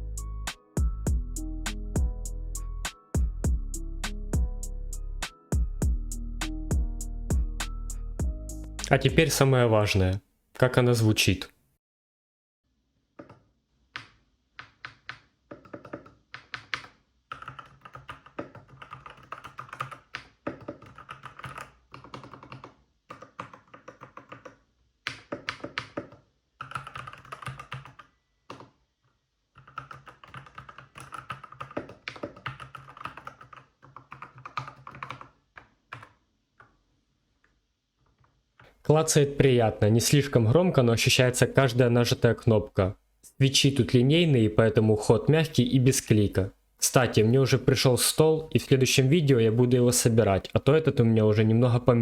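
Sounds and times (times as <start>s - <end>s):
mechanical keyboard typing: 14.0s - 28.7s, 29.6s - 36.7s.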